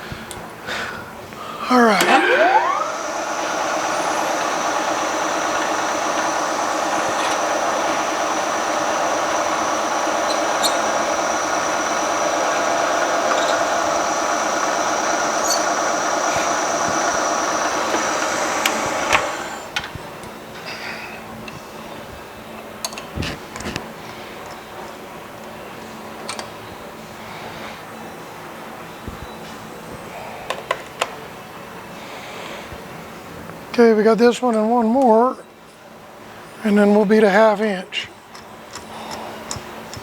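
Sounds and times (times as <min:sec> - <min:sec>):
milling machine cutting metal: 0:01.7 - 0:19.8.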